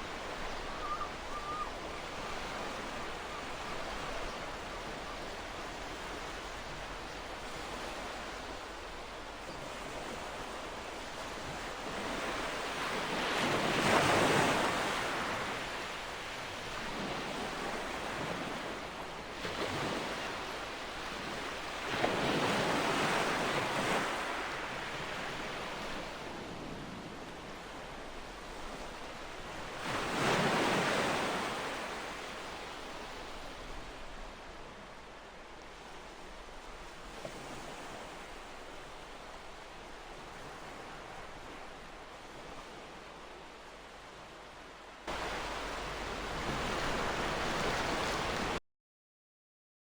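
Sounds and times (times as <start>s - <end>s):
surf hiss: 45.1s - 48.6s
waves breaking: 45.1s - 48.6s.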